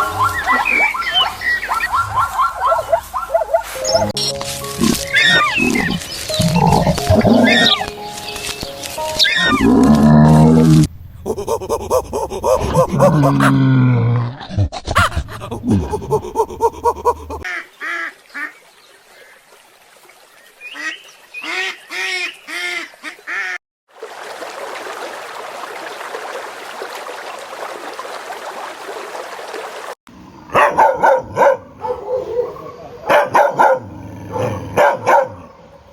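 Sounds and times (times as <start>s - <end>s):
waterfowl honking: 0.0s - 8.4s, 9.1s - 9.7s, 17.4s - 18.6s, 20.7s - 23.6s
rapid animal calls: 4.8s - 7.9s, 9.2s - 10.0s.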